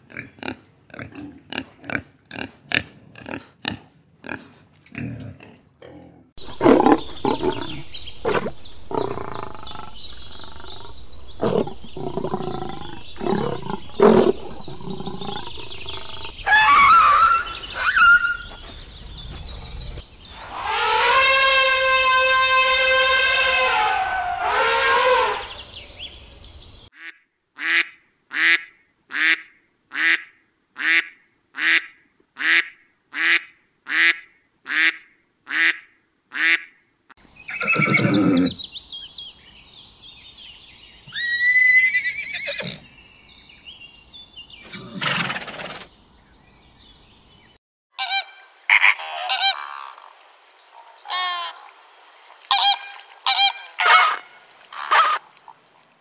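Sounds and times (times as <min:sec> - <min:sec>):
flamingos honking: 0:20.4 - 0:25.7, 0:48.0 - 0:50.0, 0:52.5 - 0:55.2
honking calls: 0:20.4 - 0:25.7
horse neighing: 0:37.5 - 0:38.6, 0:41.1 - 0:42.9, 0:44.6 - 0:45.8.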